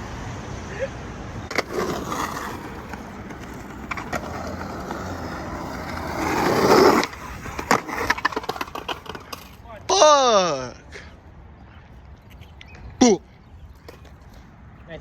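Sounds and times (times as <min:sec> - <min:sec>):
skateboard rolling over pavement: 0:01.4 - 0:09.6
skateboard clacks and slaps: 0:01.5 - 0:09.6.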